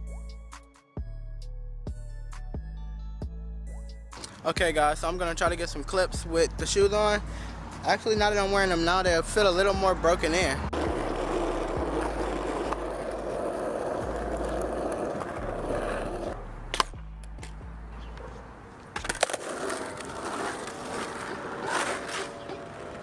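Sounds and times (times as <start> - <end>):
skateboard rolling on pavement: 6.6 - 23.0
skateboard clacking: 10.7 - 23.0.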